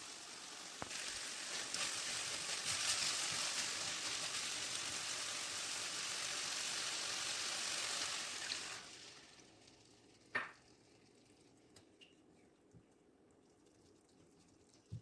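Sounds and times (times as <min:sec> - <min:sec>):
food sizzling in a pan: 0:00.0 - 0:11.4.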